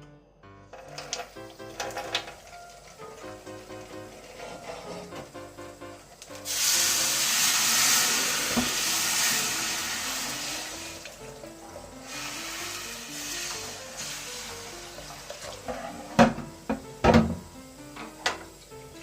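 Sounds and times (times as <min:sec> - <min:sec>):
background music: 0:00.0 - 0:19.0
food sizzling in frying pan: 0:00.8 - 0:19.0
tap on pan: 0:16.1 - 0:18.5.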